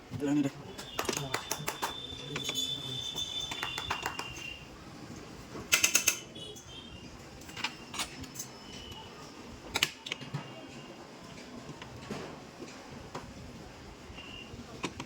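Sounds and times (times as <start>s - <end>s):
sharp clicks and clinks: 0.8s - 4.6s, 5.7s - 6.7s.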